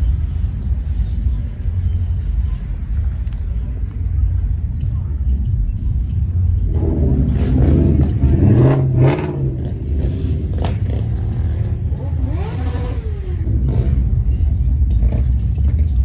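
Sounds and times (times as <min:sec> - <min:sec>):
car engines rumbling: 0:00.0 - 0:16.0
car engine revving: 0:06.5 - 0:16.0.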